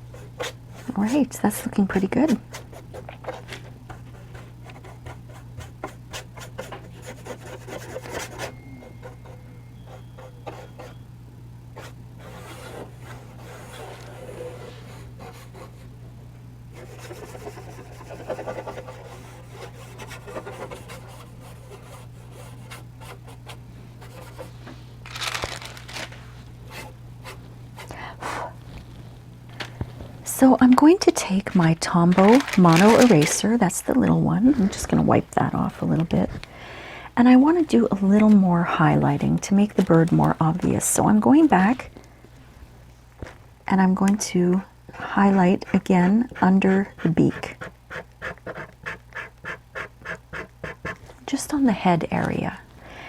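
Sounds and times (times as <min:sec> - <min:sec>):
low electrical hum: 0:00.0 - 0:53.0
charcoal rubbing on paper: 0:00.1 - 0:11.0, 0:16.7 - 0:24.6, 0:45.2 - 0:51.0
charcoal scratching on paper: 0:00.1 - 0:11.0, 0:16.7 - 0:24.5, 0:45.2 - 0:51.0.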